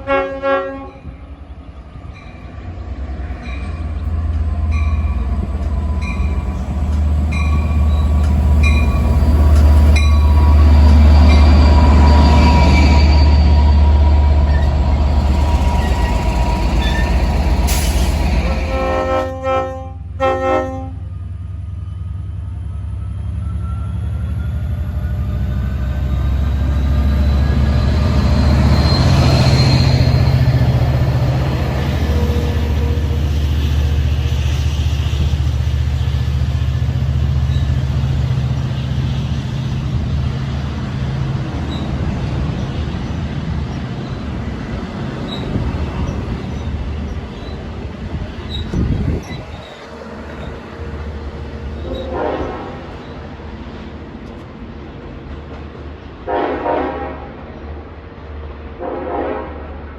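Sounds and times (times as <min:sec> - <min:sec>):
train horn blasts: 0:00.0 - 0:01.2, 0:18.3 - 0:21.1, 0:51.8 - 0:53.0, 0:56.3 - 0:57.4, 0:58.8 - 0:59.8
train engine and wheel rumble: 0:00.0 - 0:59.9.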